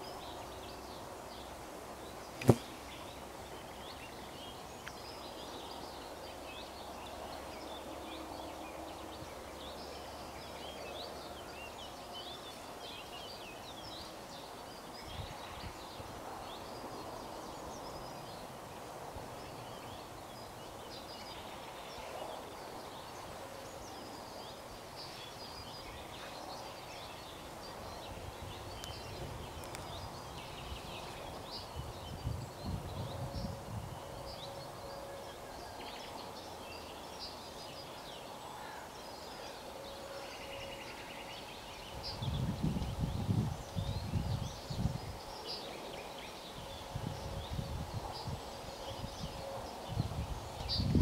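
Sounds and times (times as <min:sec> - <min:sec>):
small birds chirping: 0:00.0 - 0:51.0
wind gusts on microphone: 0:14.7 - 0:20.0, 0:25.2 - 0:35.0, 0:41.6 - 0:51.0.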